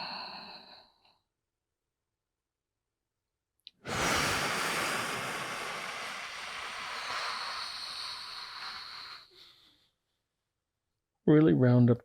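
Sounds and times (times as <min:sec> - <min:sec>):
long loud breath: 0:00.0 - 0:01.1, 0:03.8 - 0:10.0.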